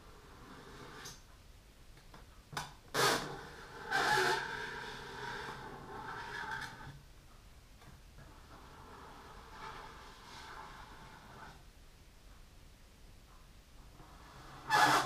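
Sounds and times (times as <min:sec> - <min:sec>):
fingernails scratching a balloon: 0:03.0 - 0:06.9, 0:14.2 - 0:15.0.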